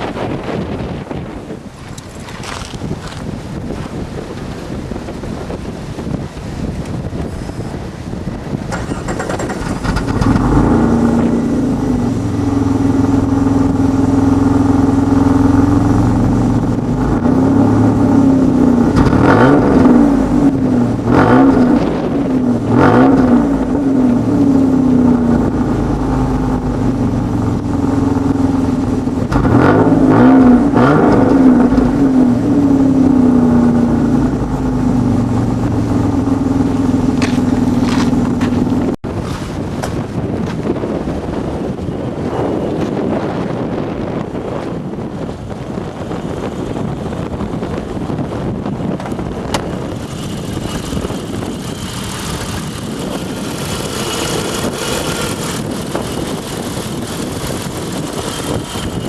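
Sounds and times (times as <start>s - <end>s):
car engine revving: 8.7s - 39.0s, 45.6s - 59.0s.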